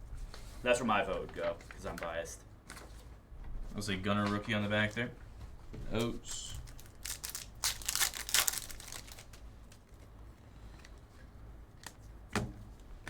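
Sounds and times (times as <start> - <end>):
foil wrapper crinkling: 6.3 - 10.0.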